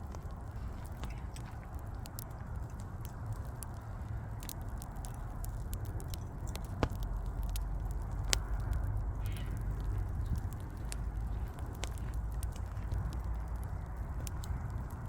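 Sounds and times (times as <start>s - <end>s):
low steady rumble: 0.0s - 15.0s
wood fire crackling: 0.0s - 15.0s.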